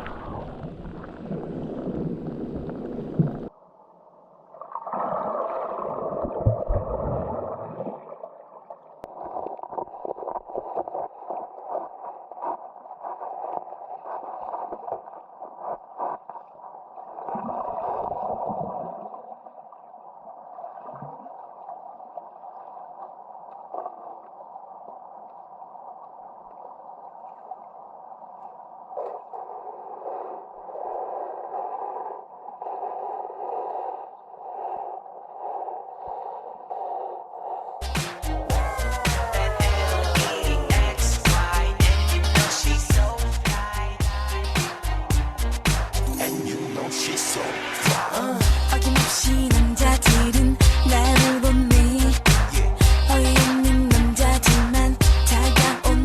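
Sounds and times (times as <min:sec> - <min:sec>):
stream water gurgling: 0:00.0 - 0:03.6, 0:04.4 - 0:15.8.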